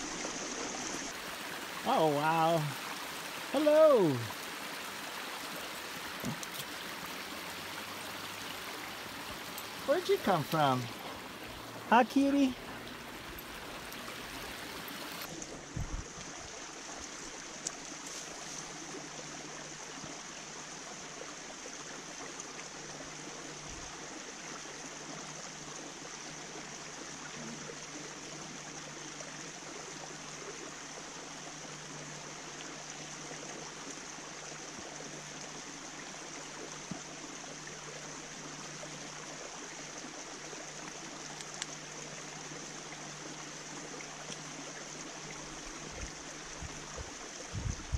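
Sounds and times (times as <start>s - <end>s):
stream flowing over rock: 0.0s - 47.9s.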